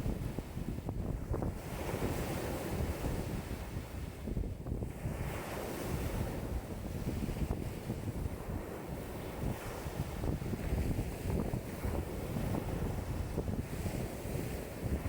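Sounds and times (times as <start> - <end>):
wind buffeting microphone: 0.0 - 15.0
lake waves breaking ashore: 4.9 - 15.0.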